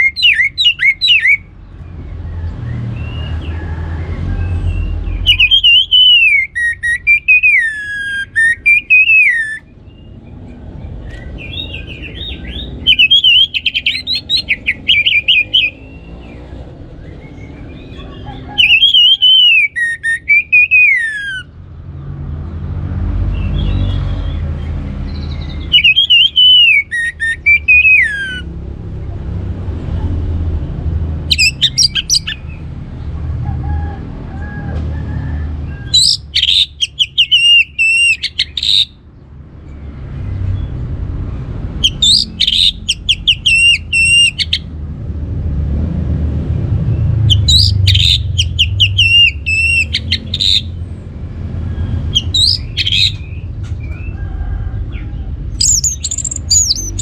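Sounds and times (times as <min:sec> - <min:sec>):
thrush singing: 0:00.0 - 0:01.6, 0:02.8 - 0:10.2, 0:11.2 - 0:21.5, 0:25.0 - 0:28.6, 0:31.2 - 0:32.6, 0:35.9 - 0:39.0, 0:41.7 - 0:44.7, 0:47.1 - 0:54.2, 0:54.8 - 0:57.0
low rumble: 0:44.6 - 0:49.5.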